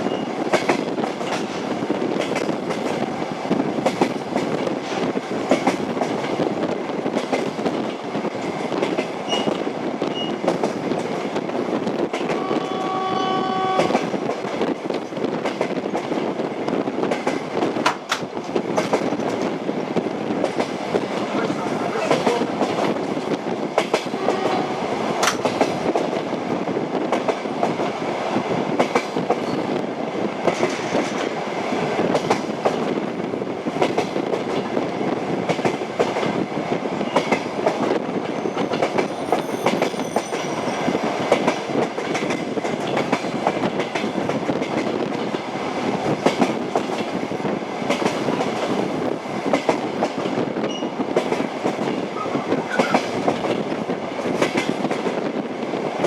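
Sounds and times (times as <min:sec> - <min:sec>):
train wheels rumbling: 0:00.0 - 0:56.0
wheels clacking on rail joints: 0:37.0 - 0:47.2.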